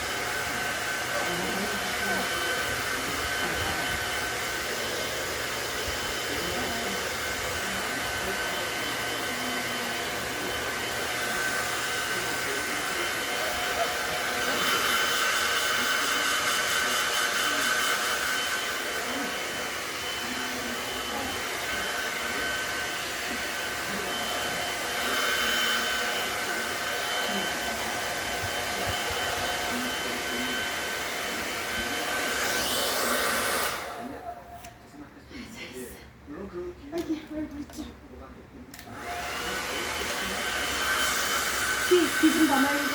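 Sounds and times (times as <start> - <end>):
hair dryer blowing: 0.0 - 34.4, 38.8 - 42.9.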